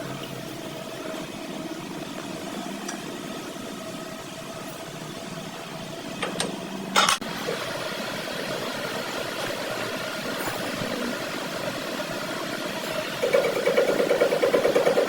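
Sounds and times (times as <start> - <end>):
workshop machine humming: 0.0 - 15.0.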